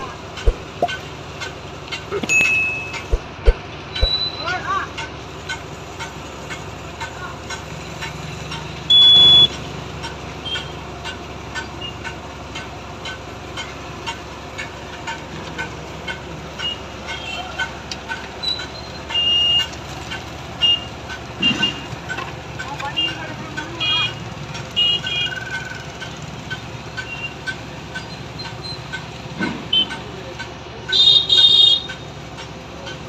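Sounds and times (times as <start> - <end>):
heavy machinery engine hum: 0.0 - 33.0
traffic noise: 0.0 - 33.0
high-pitched beep: 2.2 - 4.4.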